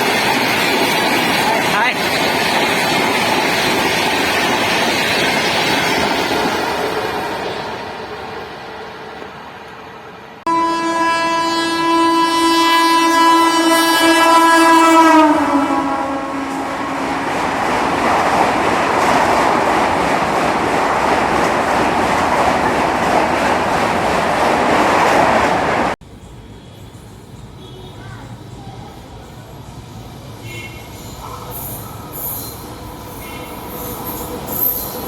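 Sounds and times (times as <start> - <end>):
train wheels clattering on rails: 0.0 - 7.8, 16.4 - 26.0
train horn blast: 10.4 - 17.6.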